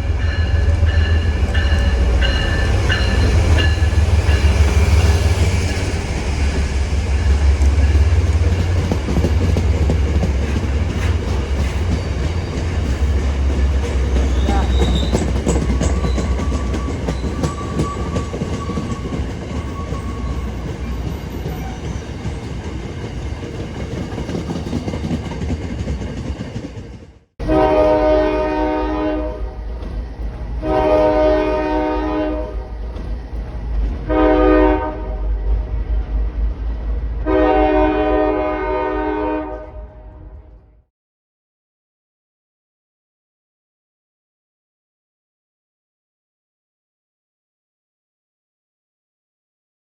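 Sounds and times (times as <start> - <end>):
train rumbling past: 0.0 - 40.9
wheels clattering on rails: 0.2 - 27.2, 29.5 - 31.2, 32.6 - 34.1
locomotive chime horn: 27.4 - 29.7, 30.6 - 32.8, 34.0 - 35.4, 37.2 - 40.4.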